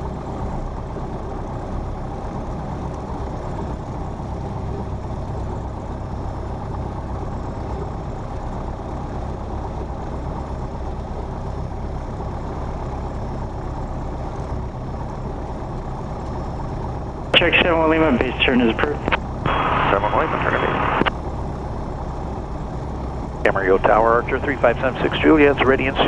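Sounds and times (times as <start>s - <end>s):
propeller plane engine idling: 0.0s - 26.0s.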